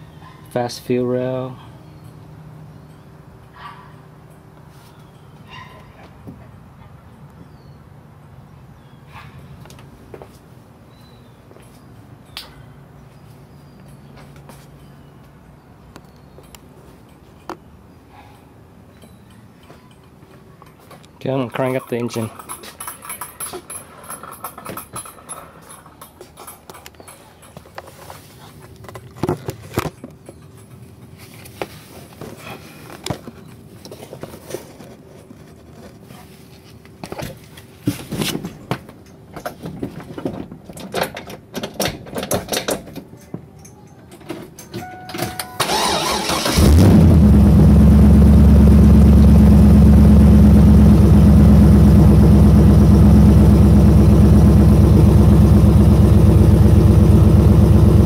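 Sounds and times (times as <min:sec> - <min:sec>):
car engine starting and idling: 0:45.6 - 0:58.0.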